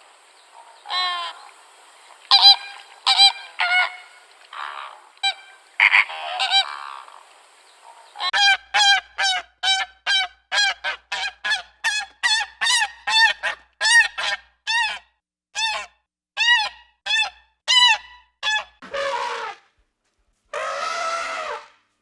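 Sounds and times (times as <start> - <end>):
animal honking calls: 2.2 - 8.4.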